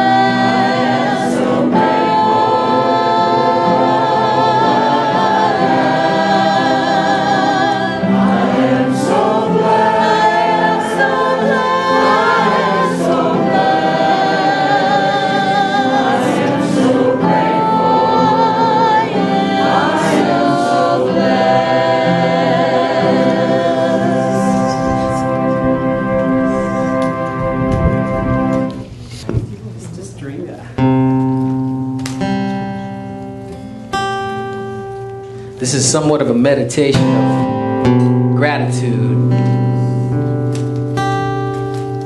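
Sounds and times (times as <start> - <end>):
congregation singing a hymn: 0.0 - 29.0.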